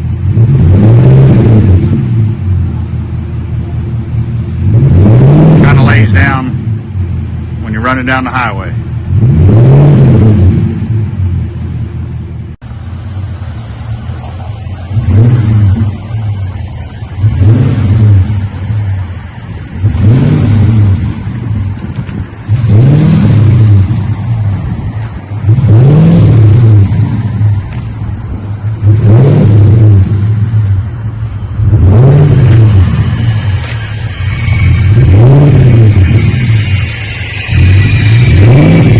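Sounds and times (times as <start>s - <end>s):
truck engine revving: 0.0s - 38.9s.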